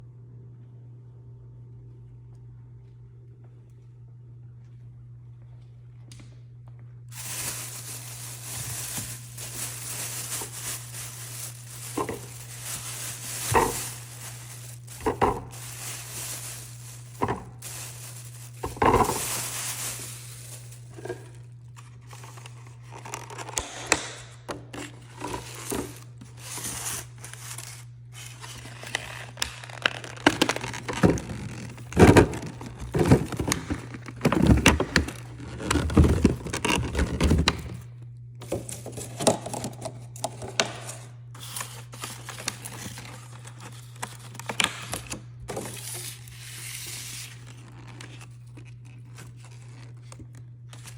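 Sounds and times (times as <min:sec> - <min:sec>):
steady low hum: 0:00.0 - 0:42.2
plastic bags crinkling: 0:07.1 - 0:23.6, 0:24.7 - 0:37.9, 0:41.4 - 0:50.9
containers knocking and scraping: 0:10.1 - 0:20.1, 0:30.4 - 0:37.7.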